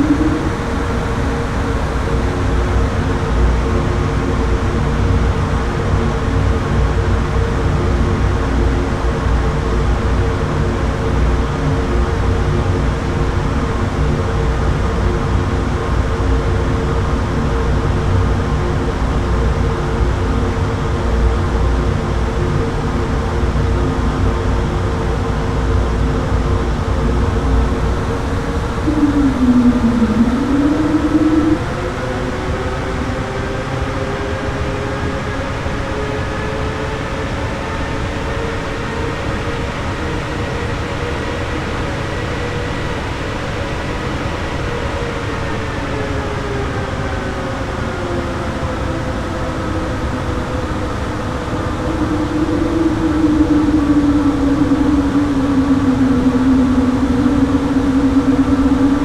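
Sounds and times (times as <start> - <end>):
strong low hum: 0.0 - 7.3, 24.7 - 59.0
jet engines droning: 0.0 - 59.0.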